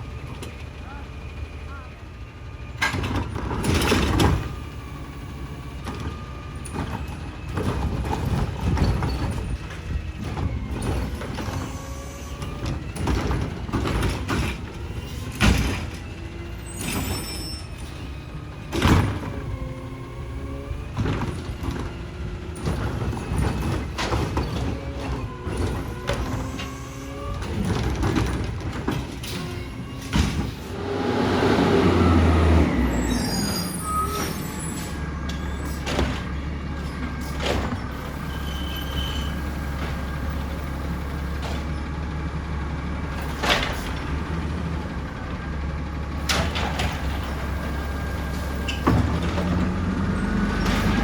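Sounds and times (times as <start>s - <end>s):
diesel engine revving: 0.0s - 51.0s
loud bangs from bins: 5.8s - 33.0s, 35.6s - 38.4s, 43.2s - 44.6s, 46.2s - 51.0s
hydraulic whine: 29.2s - 41.8s.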